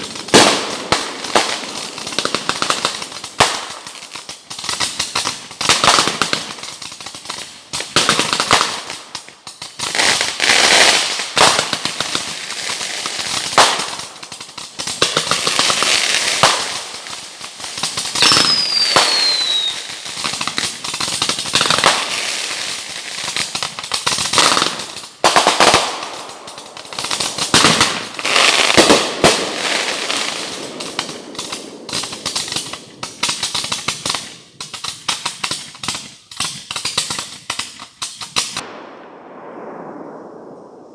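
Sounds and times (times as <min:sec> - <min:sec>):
fireworks bangs and crackling: 0:00.0 - 0:40.9
falling firework whistle: 0:18.2 - 0:20.1, 0:39.0 - 0:40.9.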